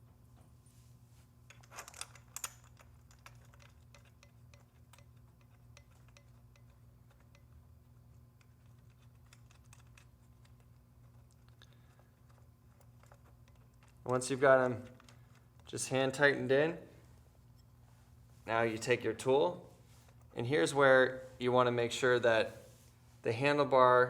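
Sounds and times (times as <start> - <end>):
low steady hum: 0.0 - 24.0
metallic clicks of bolts and washers: 1.5 - 15.8.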